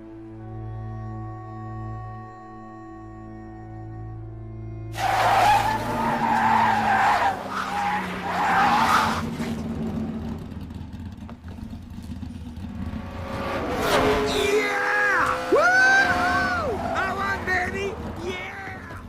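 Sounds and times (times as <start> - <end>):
race car tyres squealing: 5.0 - 9.7, 13.6 - 19.0.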